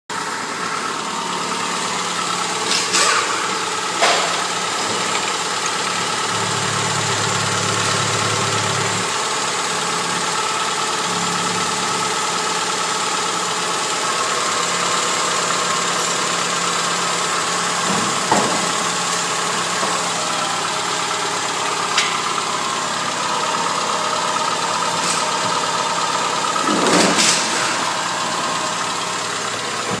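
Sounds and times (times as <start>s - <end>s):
car engine idling: 0.1s - 30.0s.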